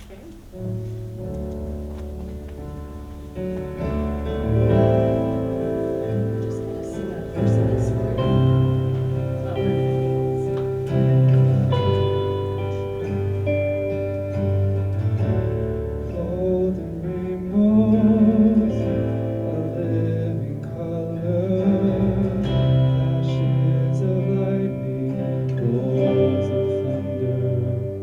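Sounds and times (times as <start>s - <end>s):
instrumental accompaniment: 0.0s - 28.0s
person singing worship song: 16.1s - 28.0s.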